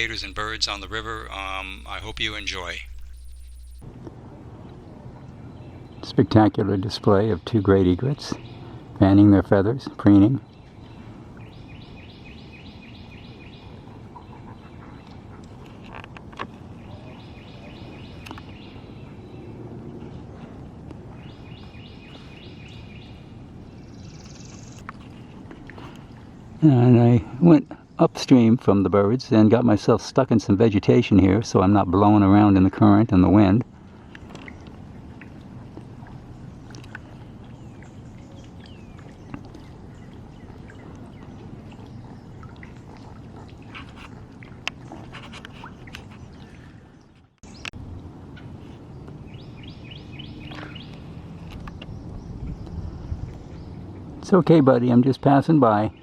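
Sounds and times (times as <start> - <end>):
birds chirping: 0.0 - 3.8, 35.9 - 47.8, 48.4 - 54.0
songbird calling: 0.0 - 3.8, 48.4 - 53.8
outdoor background noise: 0.0 - 56.0
wind rumble on microphone: 47.5 - 54.3.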